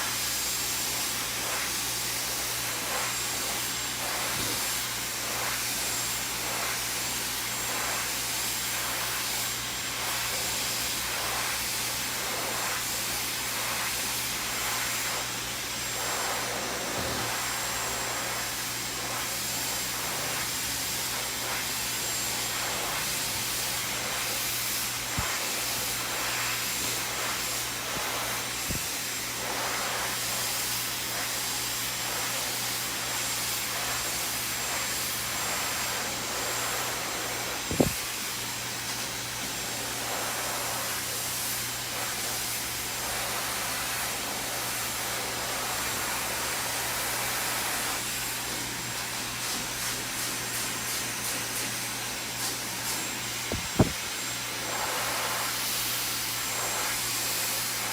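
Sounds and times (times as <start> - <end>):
hair dryer blowing: 0.0 - 57.9
sharp knock: 53.5 - 54.0.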